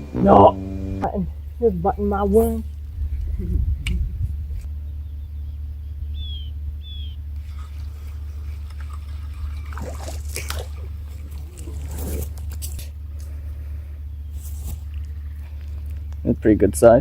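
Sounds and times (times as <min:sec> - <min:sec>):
low rumble: 0:00.0 - 0:17.0
water trickling and splashing: 0:07.4 - 0:13.4.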